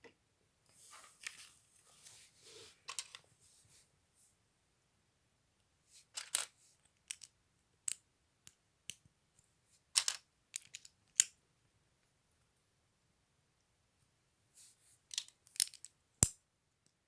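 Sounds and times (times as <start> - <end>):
plastic pieces clicking together: 6.2 - 7.3, 15.1 - 15.9.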